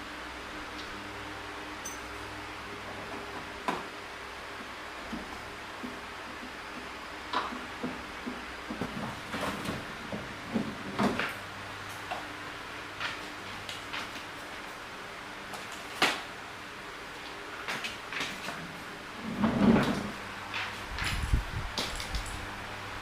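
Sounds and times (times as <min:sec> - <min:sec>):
faint steady hum: 0:00.0 - 0:23.0
tools clattering: 0:01.8 - 0:02.1.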